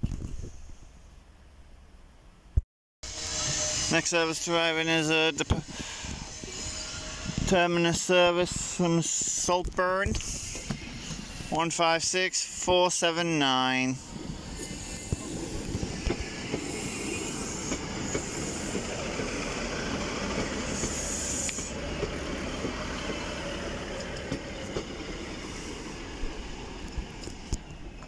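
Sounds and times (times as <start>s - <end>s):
rail rumble: 0.5s - 28.0s
train engine running: 3.0s - 28.0s
wheels clicking over rail joints: 17.4s - 25.4s.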